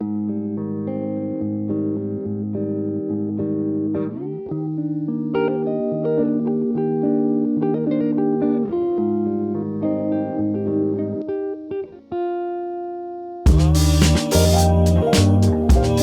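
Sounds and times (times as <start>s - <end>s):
plucked guitar melody: 0.0s - 16.0s
bass notes: 13.5s - 16.0s.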